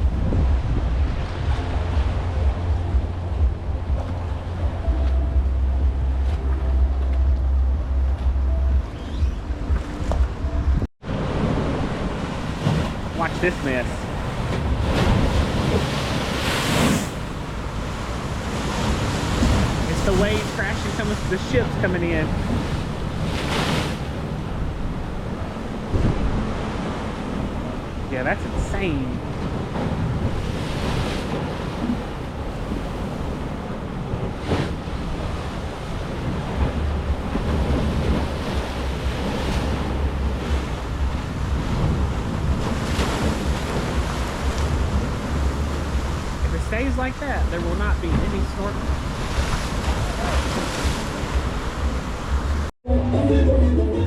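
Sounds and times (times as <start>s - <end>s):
wind buffeting microphone: 0.0s - 13.2s, 29.2s - 52.7s
waves crashing: 0.0s - 52.7s.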